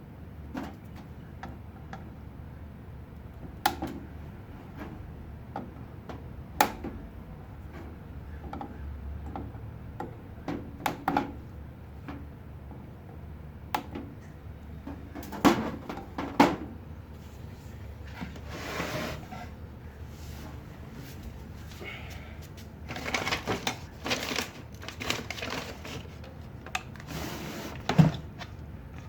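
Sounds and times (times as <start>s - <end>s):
steady low hum: 0.0s - 29.0s
clicks and knocks of objects handled: 22.5s - 27.1s.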